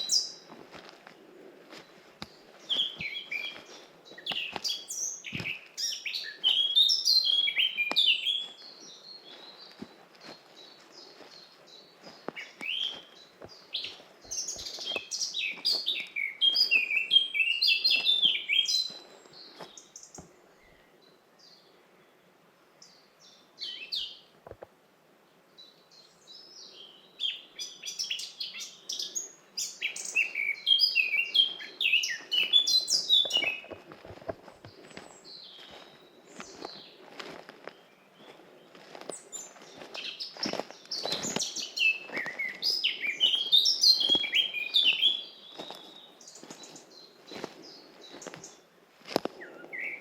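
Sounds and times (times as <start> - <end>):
songbird singing: 0.0 - 24.6, 25.2 - 50.0.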